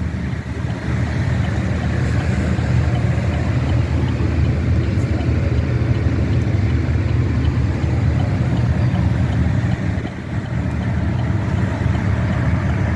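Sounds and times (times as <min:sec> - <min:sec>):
truck engine and road rumble: 0:00.0 - 0:12.9.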